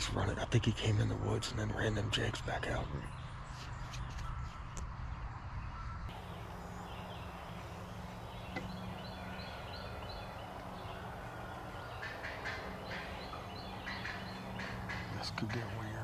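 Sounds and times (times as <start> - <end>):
wild turkeys calling: 6.1 - 16.0.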